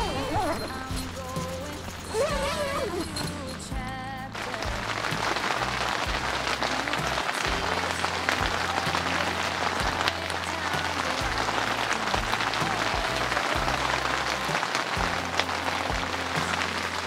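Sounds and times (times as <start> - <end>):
background music with bass: 0.0 - 17.0
heavy rain on a tent: 4.3 - 17.0.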